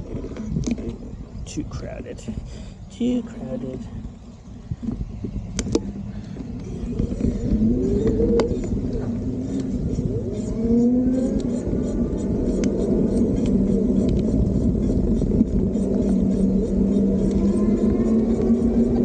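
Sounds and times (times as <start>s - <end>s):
wind and road rumble: 0.0s - 19.0s
electric motor whine: 4.0s - 19.0s.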